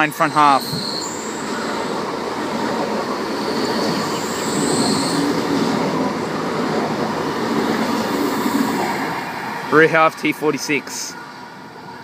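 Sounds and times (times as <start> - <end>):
wheels rolling on rail: 0.6 - 10.2.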